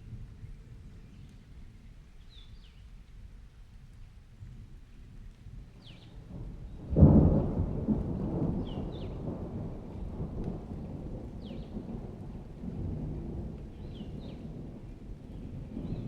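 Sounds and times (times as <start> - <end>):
steady rain: 0.0 - 16.0
thunderclap rumbling: 6.2 - 16.0.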